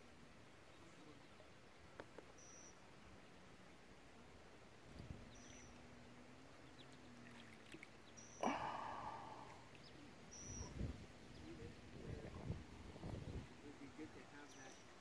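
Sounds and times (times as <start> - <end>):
bird whistling: 10.3 - 10.8.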